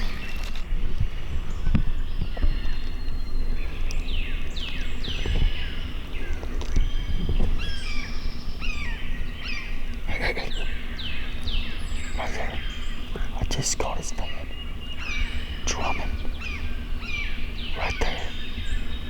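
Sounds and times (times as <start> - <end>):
songbirds whistling: 0.0 - 19.0.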